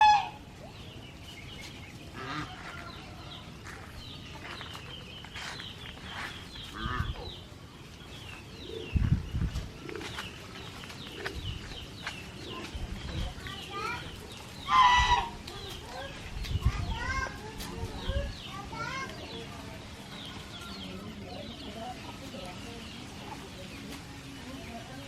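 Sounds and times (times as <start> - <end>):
geese honking: 0.0 - 0.5, 2.1 - 2.8, 14.6 - 15.7.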